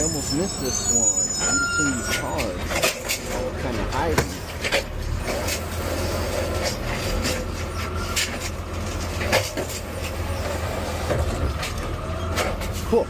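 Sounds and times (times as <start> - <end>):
rattling cab parts: 0.0 - 13.0
truck engine hum: 0.0 - 13.0.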